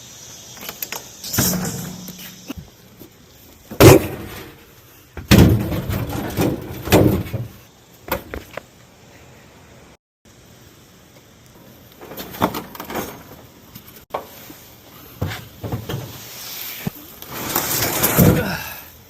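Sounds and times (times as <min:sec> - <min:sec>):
knocks and clattering: 0:05.2 - 0:08.3
scraping and rustling: 0:15.2 - 0:18.4.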